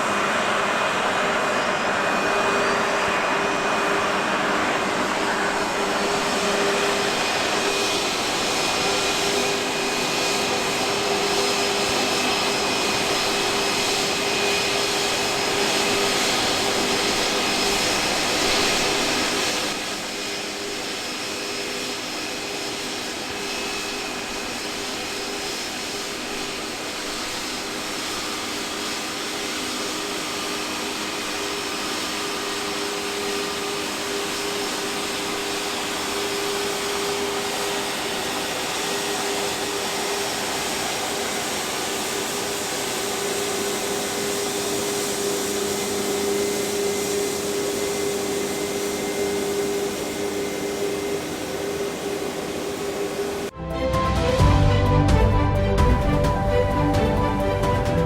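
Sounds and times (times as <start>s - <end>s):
jet engine rush and whine: 0.0s - 58.0s.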